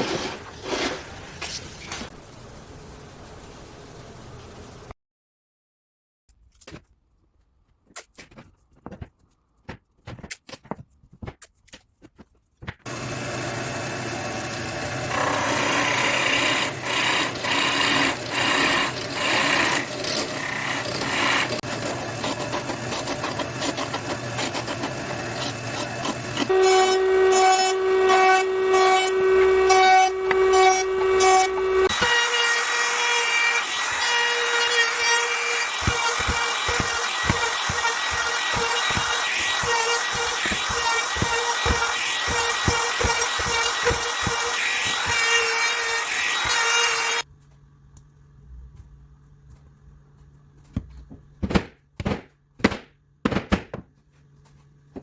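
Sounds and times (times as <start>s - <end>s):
power tool running on wood: 12.9s - 27.1s, 33.3s - 47.2s.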